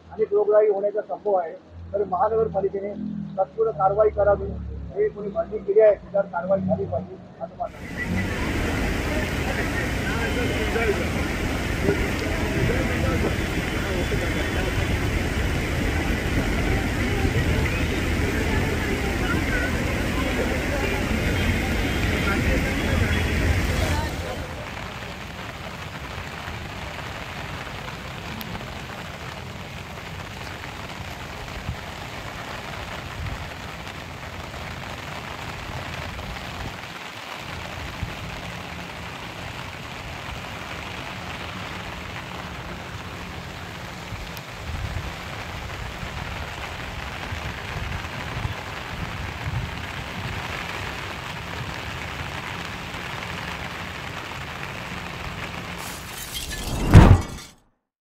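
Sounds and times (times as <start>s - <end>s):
steady rain falling: 0.0s - 56.9s
low uneven rumble: 1.7s - 25.7s.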